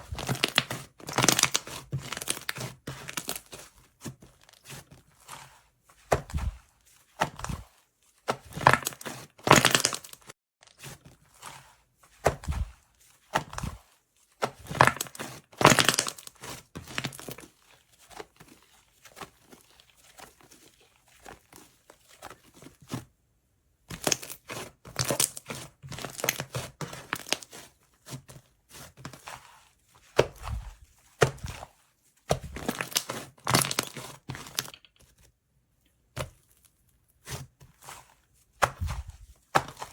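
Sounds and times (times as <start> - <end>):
slime crackling and crunching: 0.0 - 3.6, 7.3 - 11.6, 14.5 - 22.6, 23.9 - 27.6, 32.3 - 34.8.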